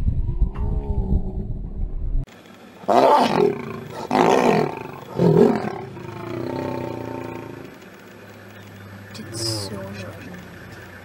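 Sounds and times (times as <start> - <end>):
lions snarling and roaring: 2.8 - 7.8
lion growl: 2.9 - 7.8.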